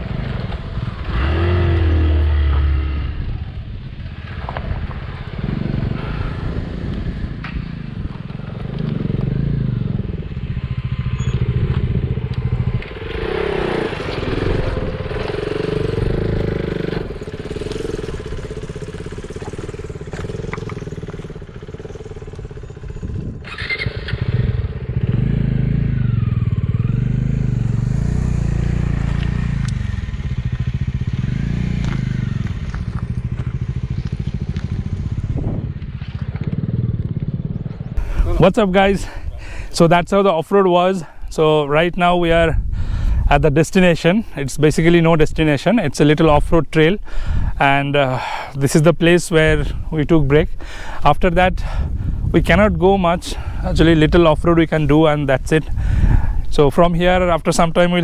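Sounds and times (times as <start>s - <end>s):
motorcycle engine revving: 0.0s - 40.3s.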